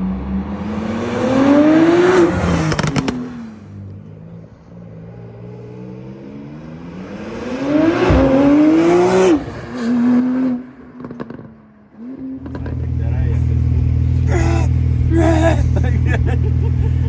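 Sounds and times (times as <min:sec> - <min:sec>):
sports car engine revving: 0:05.9 - 0:17.0
exhaust pops and crackles: 0:12.4 - 0:17.0.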